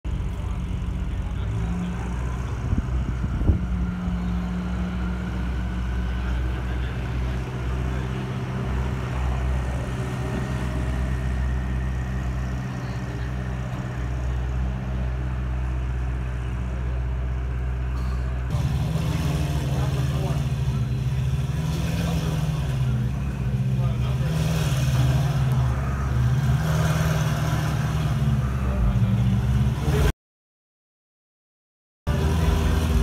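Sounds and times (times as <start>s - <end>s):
car engine idling: 0.1s - 30.1s.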